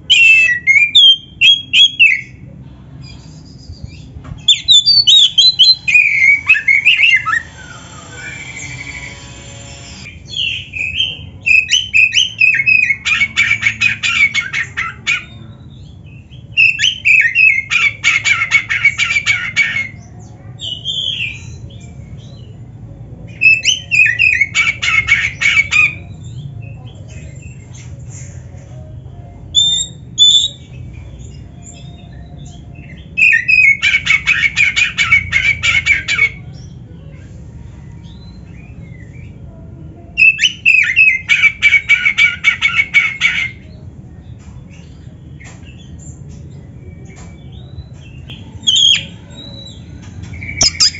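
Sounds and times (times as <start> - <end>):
bird singing warbled trills: 45.3 - 50.9.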